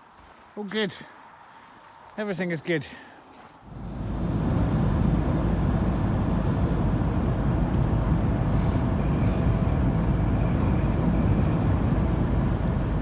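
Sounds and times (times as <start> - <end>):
van engine and road noise: 3.6 - 13.0.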